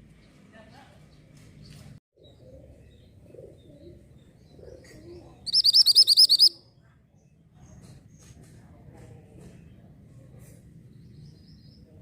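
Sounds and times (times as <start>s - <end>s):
faint low cooing: 2.2s - 5.4s
songbird rapid trill: 5.5s - 6.6s.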